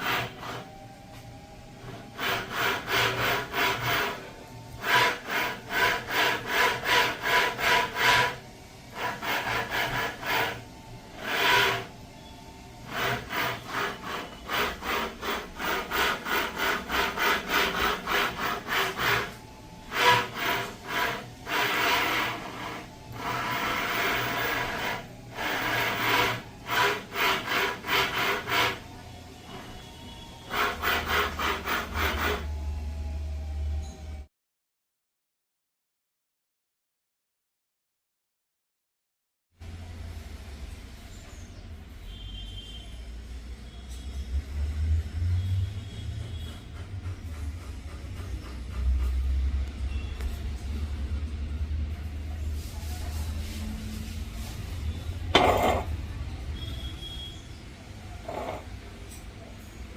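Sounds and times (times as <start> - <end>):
steering rack grinding: 11.2 - 12.0, 12.8 - 29.8, 55.2 - 56.0, 58.2 - 58.8.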